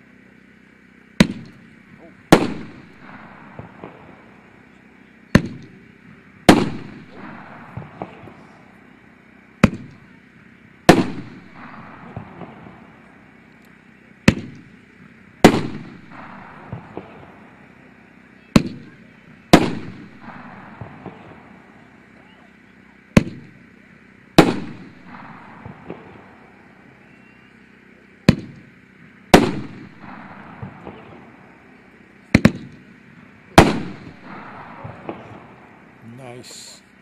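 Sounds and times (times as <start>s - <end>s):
fireworks launch thump: 1.2s - 1.7s, 14.2s - 14.8s, 18.6s - 21.7s, 23.1s - 23.6s, 28.2s - 28.7s, 32.2s - 32.9s, 33.5s - 35.7s
fireworks aerial break: 1.2s - 36.9s.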